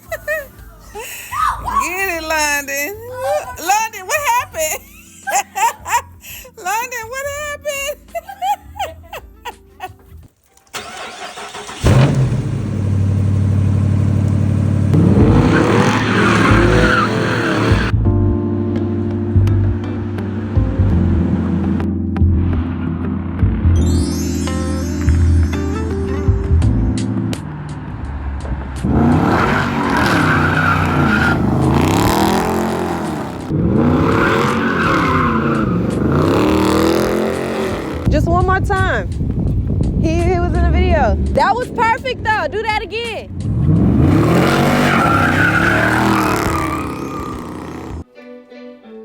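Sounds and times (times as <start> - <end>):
car engine revving hard: 10.8 - 17.9, 20.0 - 23.1, 27.5 - 38.1, 43.4 - 48.0
tyres skidding: 10.8 - 18.0, 19.8 - 23.7, 26.7 - 48.1.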